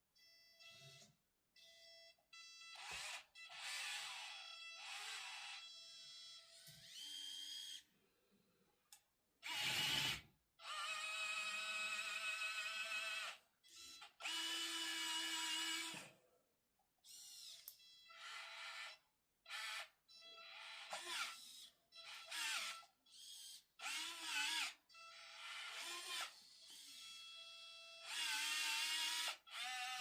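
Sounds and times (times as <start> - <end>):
small gear motors whining: 6.7 - 7.8.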